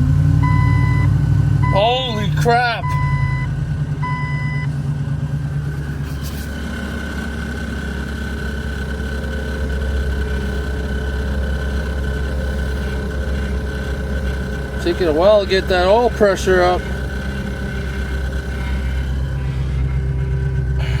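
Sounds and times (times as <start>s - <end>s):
car engine running: 0.0s - 21.0s
short electronic beeps: 0.4s - 2.2s, 2.8s - 4.7s.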